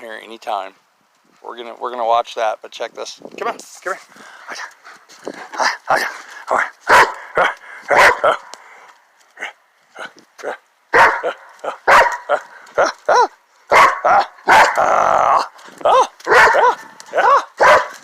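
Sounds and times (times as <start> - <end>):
dog barking and yipping: 6.8 - 8.5, 10.4 - 14.9, 15.9 - 18.0.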